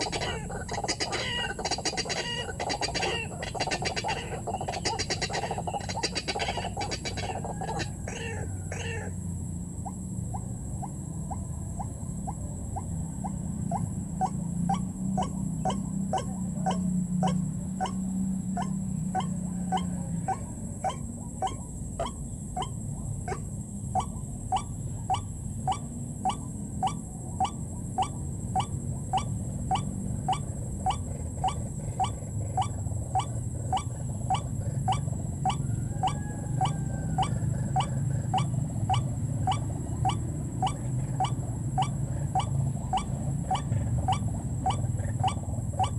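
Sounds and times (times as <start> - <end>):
waterhen calling short notes: 0.0 - 9.1.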